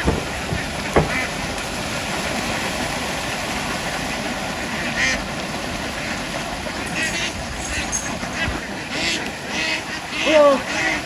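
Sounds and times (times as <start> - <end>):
sharp knock: 0.0 - 1.4
ducks quacking: 0.0 - 1.5, 5.9 - 11.0.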